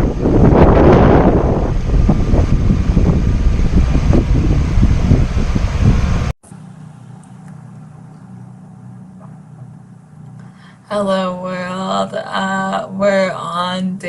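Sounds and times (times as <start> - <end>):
wind buffeting microphone: 0.0 - 6.3
loud outdoor rumble: 0.0 - 14.0
steady low hum: 0.0 - 14.0.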